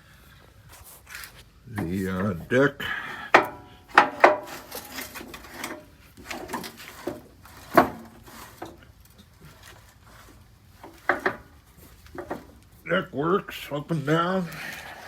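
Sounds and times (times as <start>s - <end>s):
metal linkage knocking and rattling: 3.3s - 12.7s
soft scraping: 3.6s - 12.9s.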